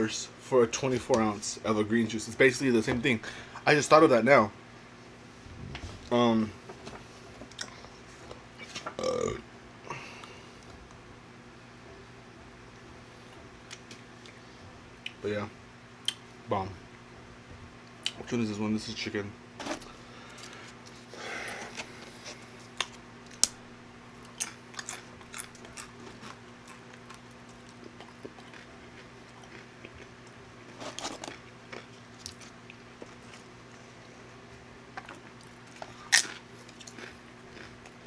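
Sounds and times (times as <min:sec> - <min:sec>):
crunching and chewing chips: 0:19.6 - 0:34.1, 0:34.9 - 0:38.0.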